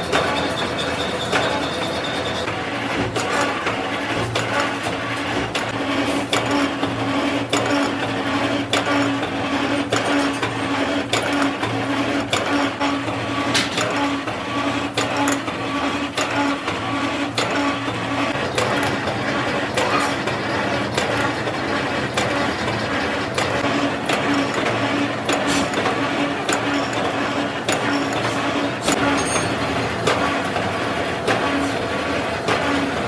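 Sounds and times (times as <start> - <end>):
metalworking machine humming: 0.0 - 33.0
sharp clicks and knocks: 22.1 - 30.7.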